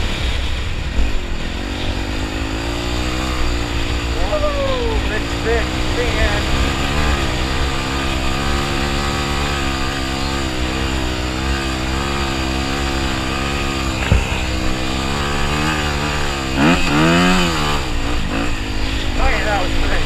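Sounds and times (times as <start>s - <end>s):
dirt bike engine revving: 0.0s - 20.0s
sharp knock: 14.0s - 14.8s.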